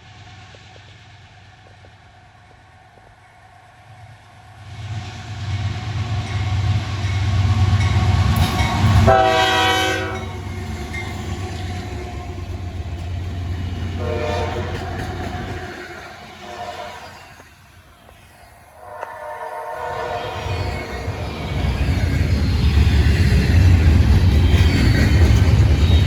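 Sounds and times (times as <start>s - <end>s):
diesel locomotive engine rumbling: 0.0s - 26.0s
train air horn blasts: 9.0s - 10.4s, 14.0s - 15.0s, 16.3s - 17.2s, 18.8s - 20.9s.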